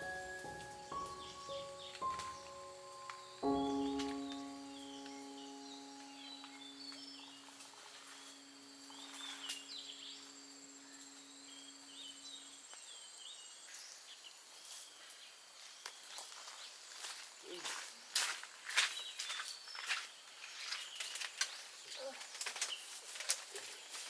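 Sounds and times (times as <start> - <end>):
birds chirping: 0.0 - 14.4.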